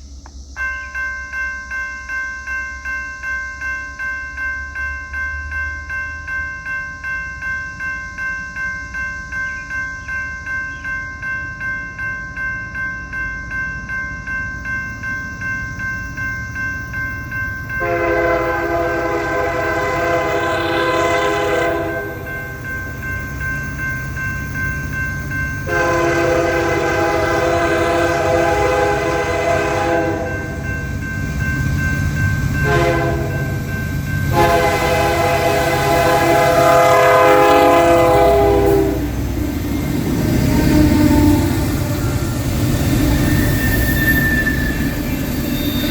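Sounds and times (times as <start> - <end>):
crossing bell ringing: 0.5 - 45.9
diesel locomotive rumble: 14.5 - 45.9
train air horn: 17.8 - 22.3, 25.7 - 30.6, 32.6 - 33.6, 34.3 - 39.2, 40.4 - 42.0.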